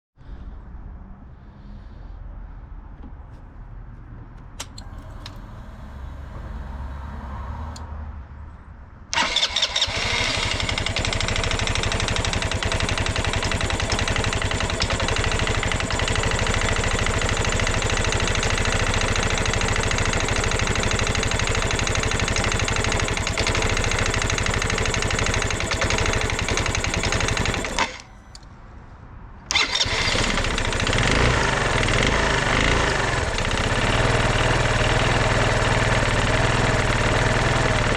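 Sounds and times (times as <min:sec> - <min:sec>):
scooter engine running: 0:09.1 - 0:28.2, 0:29.5 - 0:37.9.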